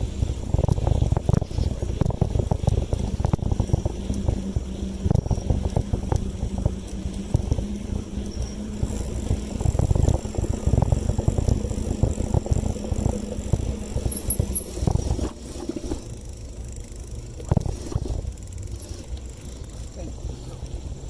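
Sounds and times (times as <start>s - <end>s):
bicycle rattles and knocks: 8.8s - 19.9s.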